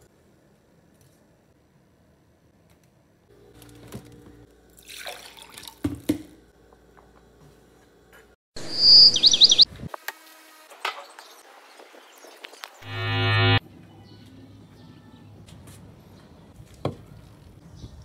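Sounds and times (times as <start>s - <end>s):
high bird chirps: 8.6s - 9.7s.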